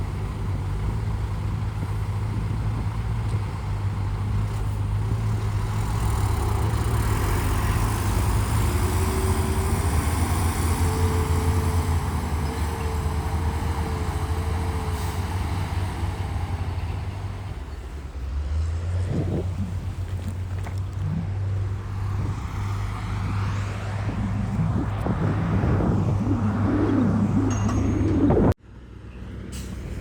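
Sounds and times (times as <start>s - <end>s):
heavy diesel engine humming: 0.0s - 30.0s
faint wavering whine: 23.4s - 28.6s.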